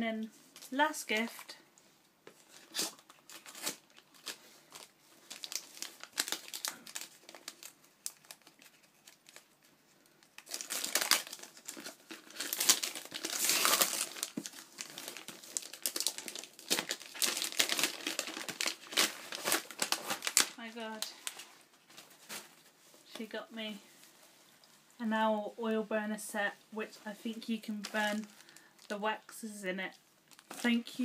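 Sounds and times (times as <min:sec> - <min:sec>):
packaging tearing and crumpling: 0:02.4 - 0:21.5, 0:27.8 - 0:28.9.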